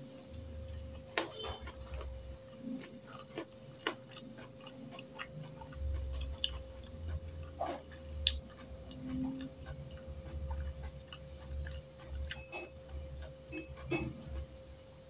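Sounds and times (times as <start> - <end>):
high insect chirring: 0.0 - 15.0
person chewing food: 0.3 - 15.0
lip smacks and mouth clicks: 3.2 - 12.4.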